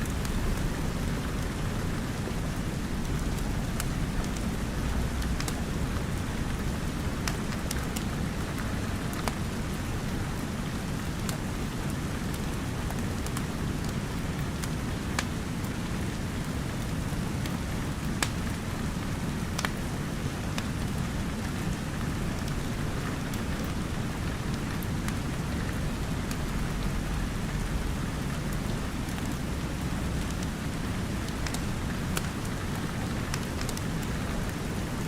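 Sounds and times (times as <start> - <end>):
steady rain: 0.0 - 35.0.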